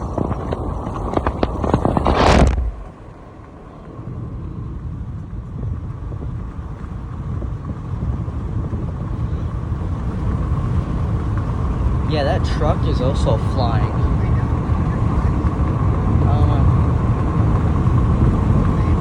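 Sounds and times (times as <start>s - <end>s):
car road noise rumble: 0.0s - 19.0s
loud rushing whoosh: 2.0s - 3.1s.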